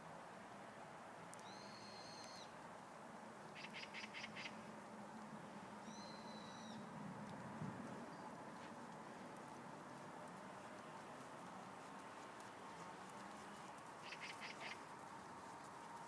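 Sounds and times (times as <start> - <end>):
faint outdoor hiss: 0.0 - 16.0
bird whistling and chirping: 1.4 - 2.5, 5.9 - 6.8.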